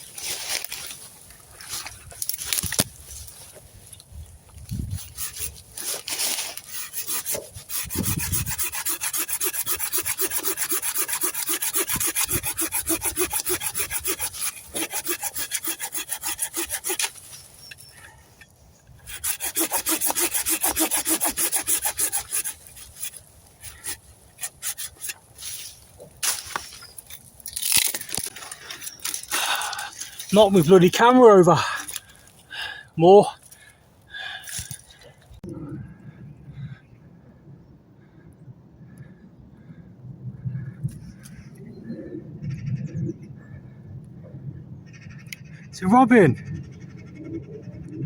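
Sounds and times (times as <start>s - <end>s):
hand saw cutting wood: 4.9s - 17.8s, 19.0s - 26.8s.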